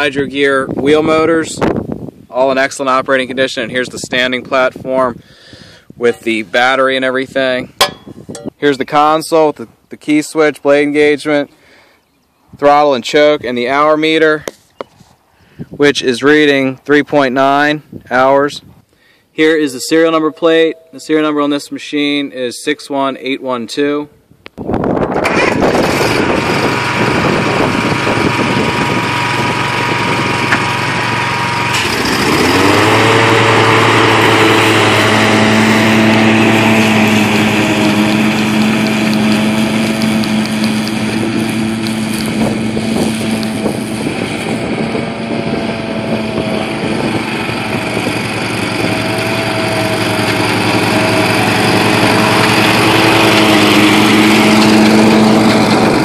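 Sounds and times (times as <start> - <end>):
mower engine revving: 25.1 - 56.0.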